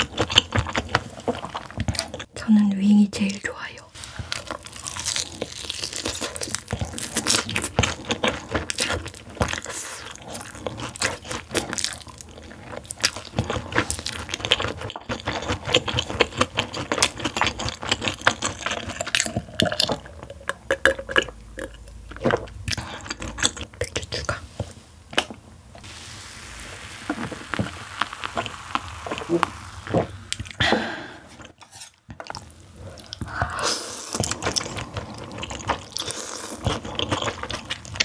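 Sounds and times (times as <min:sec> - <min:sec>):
crunching and chewing fried chicken: 0:00.0 - 0:02.3, 0:04.0 - 0:25.4, 0:31.4 - 0:38.0.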